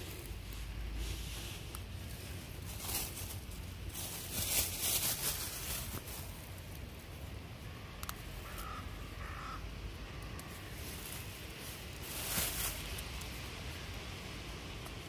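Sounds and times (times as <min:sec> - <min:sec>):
handling rustle: 0:00.0 - 0:07.3, 0:10.5 - 0:13.6
steady low rumble: 0:00.0 - 0:15.0
bird calls: 0:08.4 - 0:10.8.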